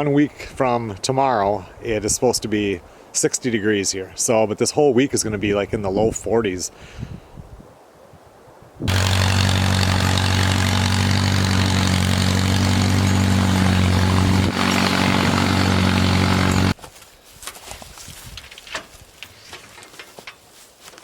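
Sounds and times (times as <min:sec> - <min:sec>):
engine running steadily: 0:08.9 - 0:16.8.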